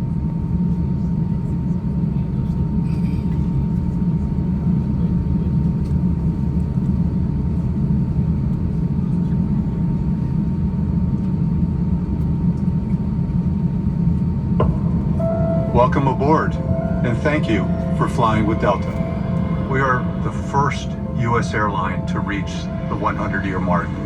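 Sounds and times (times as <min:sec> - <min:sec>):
airliner cabin low rumble: 0:14.6 - 0:24.0.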